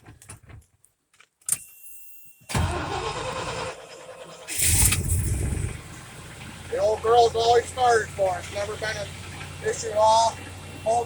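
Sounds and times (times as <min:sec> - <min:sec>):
truck engine cranking and idling: 0:02.5 - 0:11.0.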